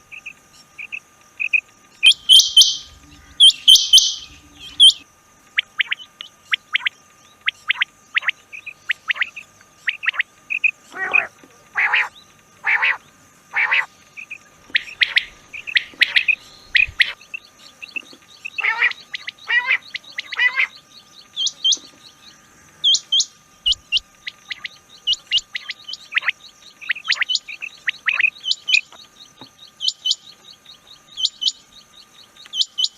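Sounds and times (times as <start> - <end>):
faint steady tone: 0.0 - 32.9
quail calling: 0.8 - 5.0, 7.6 - 22.0, 22.7 - 29.1.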